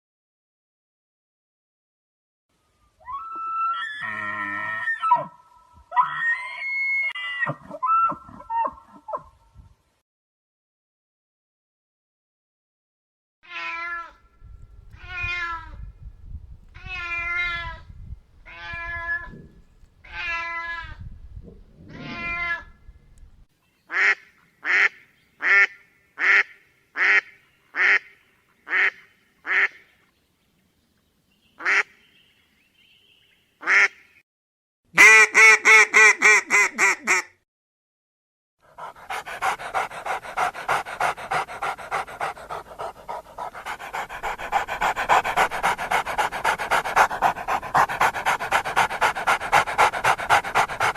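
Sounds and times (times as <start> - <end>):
animals calling: 16.6 - 23.4, 38.7 - 50.9.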